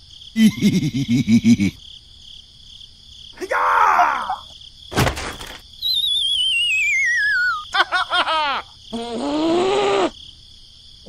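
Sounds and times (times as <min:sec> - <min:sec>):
cartoon thump: 0:04.9 - 0:05.6
quick squeaky chirps: 0:05.2 - 0:07.8
falling whistle wobbling: 0:05.8 - 0:07.7.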